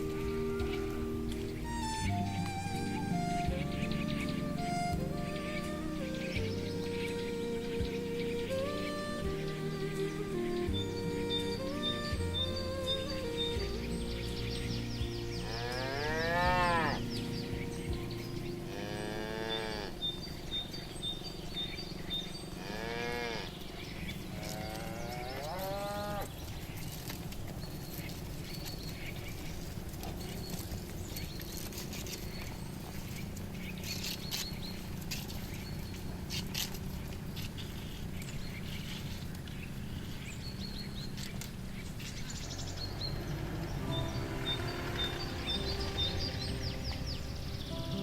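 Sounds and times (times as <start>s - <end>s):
cattle mooing: 15.4s - 20.6s, 22.5s - 26.4s.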